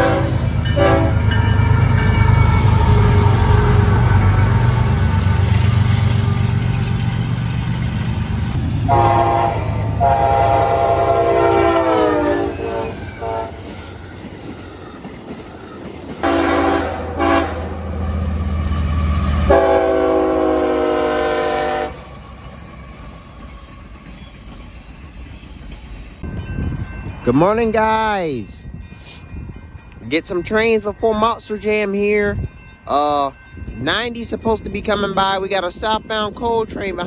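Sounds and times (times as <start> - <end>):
locomotive horn blasts: 0.0 - 4.9, 8.8 - 13.7, 16.2 - 18.0, 19.5 - 22.1
passing train rumble: 0.0 - 37.0.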